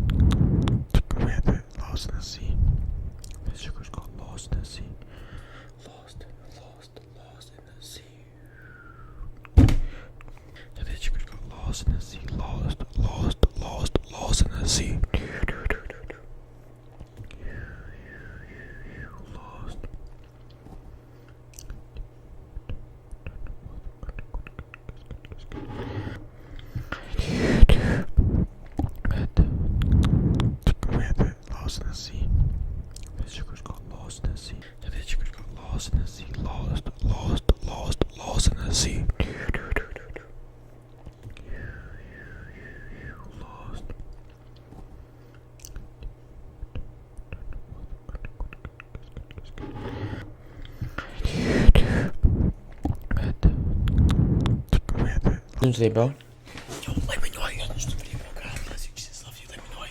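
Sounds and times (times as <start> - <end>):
steady low hum: 0.0 - 59.9
breathy whisper-like hiss: 33.2 - 40.3, 56.7 - 59.9.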